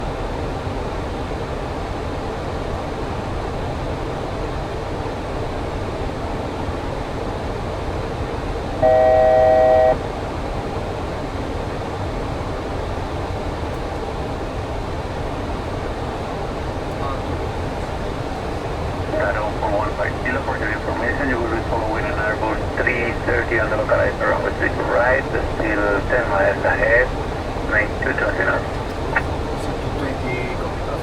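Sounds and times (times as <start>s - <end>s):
steady rushing noise in cockpit: 0.0s - 31.0s
steady electronic tone: 8.8s - 10.0s.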